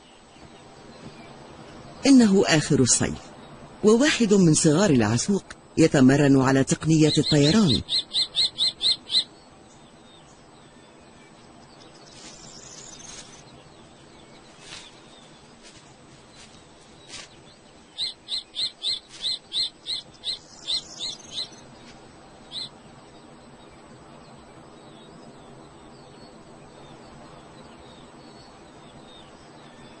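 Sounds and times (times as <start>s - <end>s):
soft rustles: 12.0s - 13.6s, 14.3s - 17.6s, 19.0s - 19.5s.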